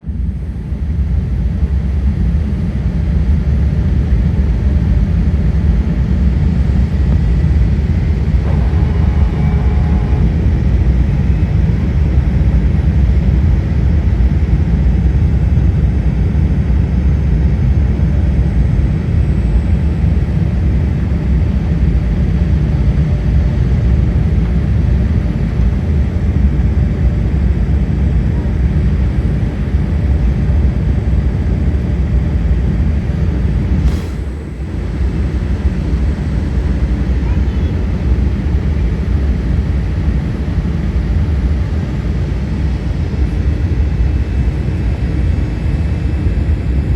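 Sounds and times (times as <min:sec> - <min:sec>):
jet engines and airflow rumble: 0:00.0 - 0:46.9
brief pitched tone: 0:08.4 - 0:11.9.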